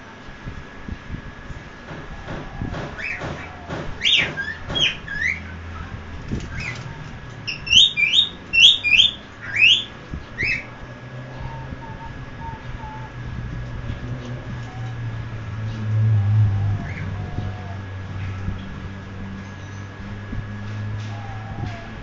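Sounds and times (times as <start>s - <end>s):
cockatiel chirping: 7.5s - 10.7s.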